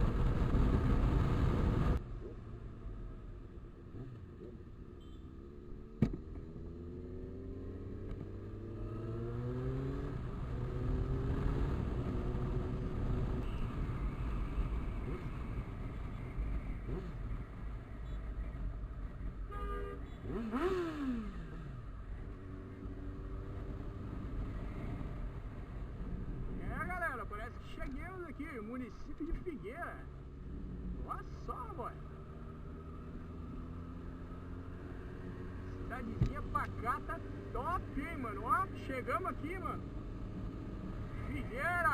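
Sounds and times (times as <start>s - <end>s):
motorcycle engine accelerating: 5.3s - 13.6s, 20.2s - 26.6s.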